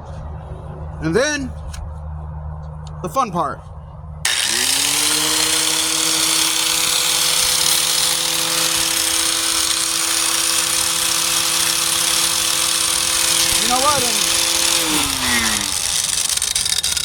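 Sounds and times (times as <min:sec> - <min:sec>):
angle grinder motor whine: 0:04.3 - 0:17.0
grinding disc hissing on metal: 0:04.3 - 0:17.0.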